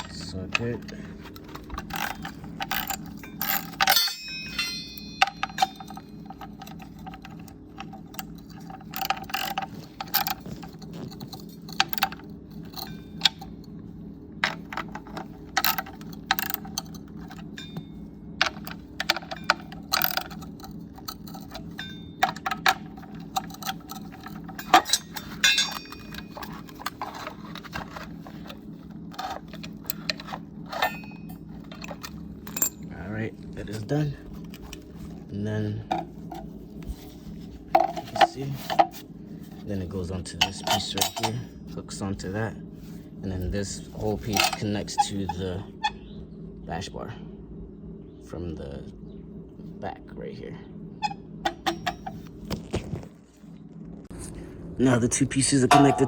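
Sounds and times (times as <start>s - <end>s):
metal tools clinking: 0.0s - 13.8s, 14.4s - 35.2s, 35.9s - 42.0s, 43.6s - 46.0s, 51.0s - 52.3s, 55.7s - 56.0s
low hum: 0.0s - 56.0s.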